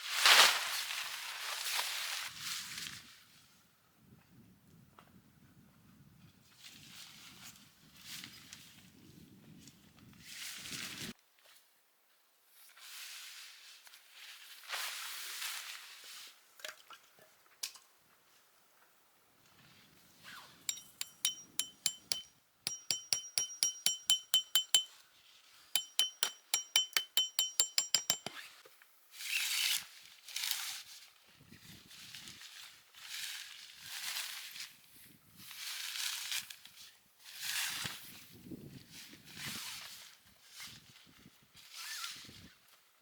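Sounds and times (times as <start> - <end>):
sharp metallic clinks: 20.7 - 24.9, 25.8 - 28.4.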